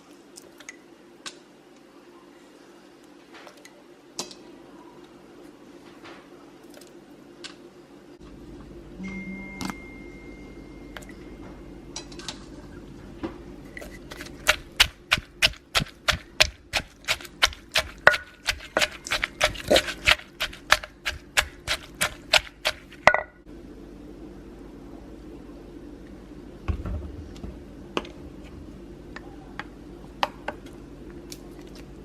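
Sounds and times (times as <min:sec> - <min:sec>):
knife chopping on cutting board: 0:14.1 - 0:23.0.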